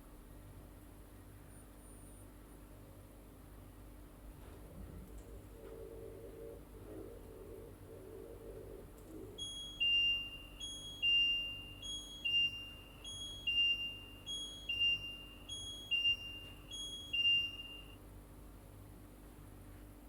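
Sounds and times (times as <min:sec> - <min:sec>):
washing machine chime: 0:09.4 - 0:18.0.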